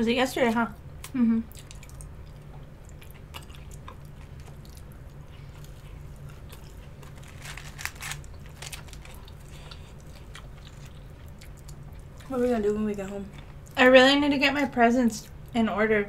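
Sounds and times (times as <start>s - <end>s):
steady low hum: 0.0s - 16.0s
chewing crispy chicken: 1.0s - 13.8s.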